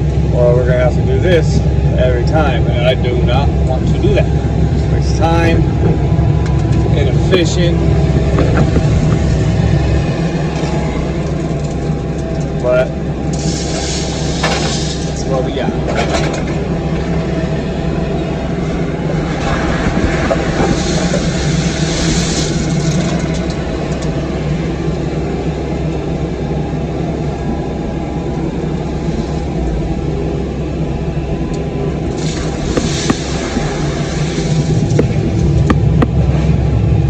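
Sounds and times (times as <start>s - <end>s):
diesel excavator engine running: 0.0s - 37.0s
machine clatter: 13.3s - 17.1s.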